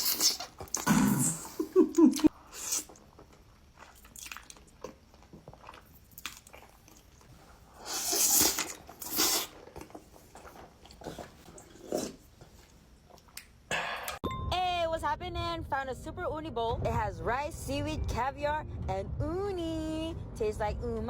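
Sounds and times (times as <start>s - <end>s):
person chewing crunchy food: 0.0s - 14.2s.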